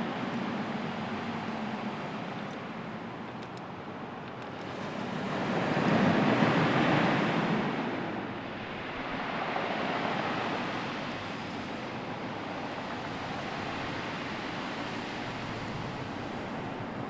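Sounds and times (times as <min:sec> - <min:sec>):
sea waves surging: 0:00.0 - 0:03.2, 0:03.9 - 0:17.0.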